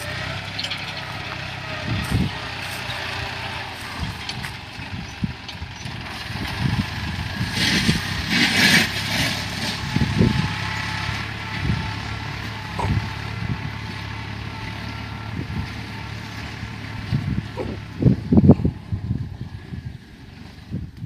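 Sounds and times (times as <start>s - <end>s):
plough rumbling through soil: 0.0s - 21.0s
tractor diesel engine running: 0.0s - 21.0s.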